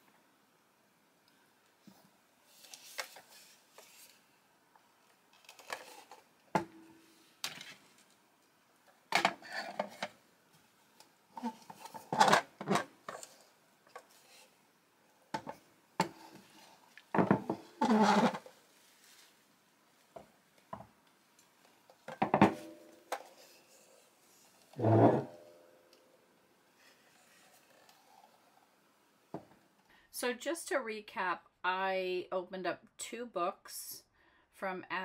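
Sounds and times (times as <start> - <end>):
rustling: 16.2 - 20.1.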